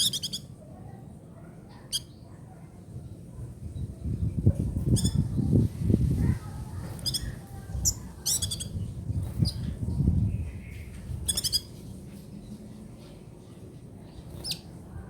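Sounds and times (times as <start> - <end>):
bird singing rattling trills: 0.0 - 0.5, 6.9 - 11.8, 14.1 - 14.8.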